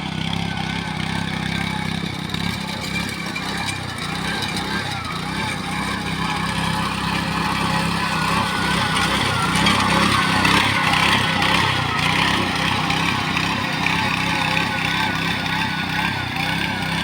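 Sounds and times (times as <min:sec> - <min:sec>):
machine engine drone: 0:00.0 - 0:17.0.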